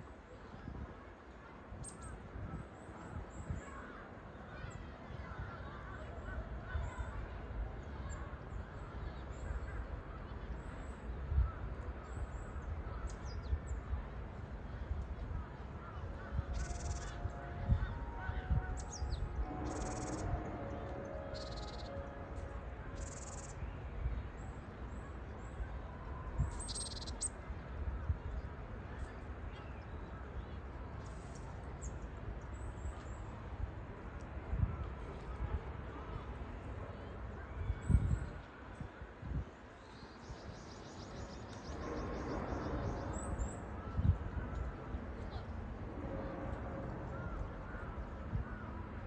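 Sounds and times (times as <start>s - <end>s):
high buzzy bird call: 16.5s - 23.6s
low rumble: 41.1s - 49.0s.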